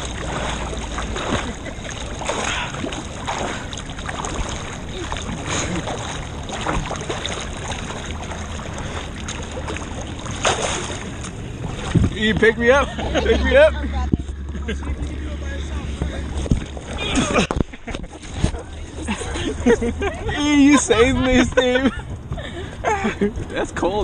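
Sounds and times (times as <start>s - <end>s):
river water rushing: 0.0s - 17.5s.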